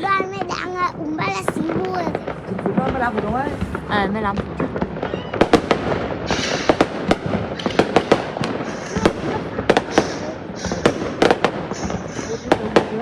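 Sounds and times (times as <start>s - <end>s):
crackling hiss: 0.0s - 13.0s
fireworks bangs: 0.0s - 13.0s.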